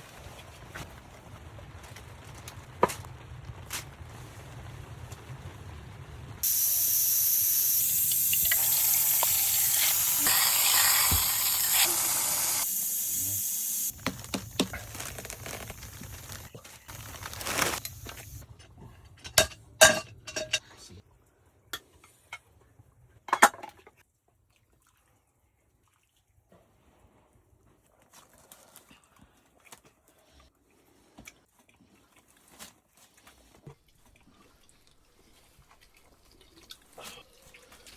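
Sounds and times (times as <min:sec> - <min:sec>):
pressure cooker venting steam: 0:06.4 - 0:14.8.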